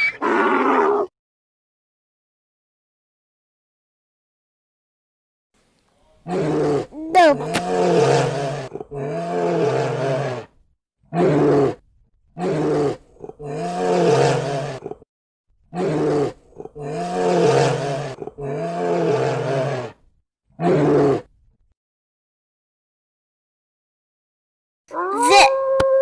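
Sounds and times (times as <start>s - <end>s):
bear roaring: 6.2s - 10.5s, 12.4s - 15.0s, 15.7s - 20.0s.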